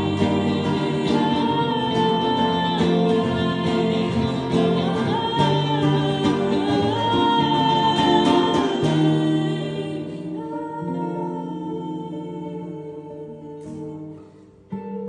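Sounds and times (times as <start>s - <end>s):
guitar: 0.0s - 15.0s
person singing long held notes: 0.0s - 15.0s.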